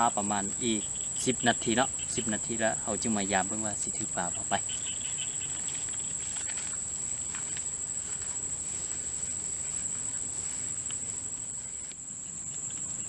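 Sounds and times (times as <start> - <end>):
insect chorus trilling: 0.0 - 13.0
faint rustles: 3.9 - 13.0.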